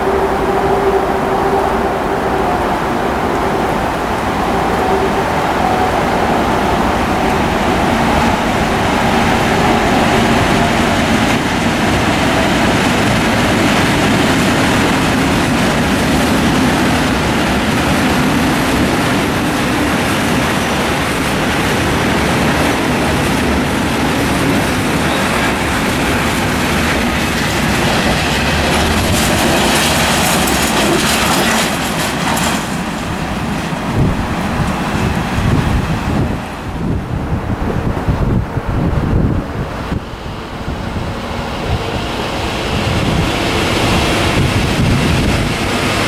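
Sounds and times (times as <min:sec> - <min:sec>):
diesel locomotive engine humming: 0:00.0 - 0:46.0
train wheels clattering on rails: 0:05.6 - 0:36.8.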